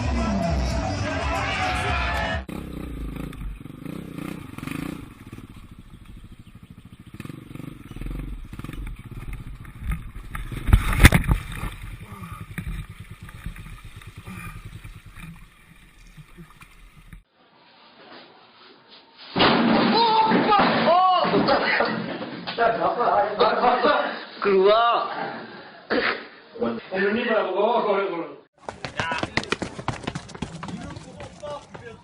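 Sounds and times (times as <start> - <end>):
motorcycle engine rumbling: 2.4 - 17.3
loud crash: 19.3 - 22.2.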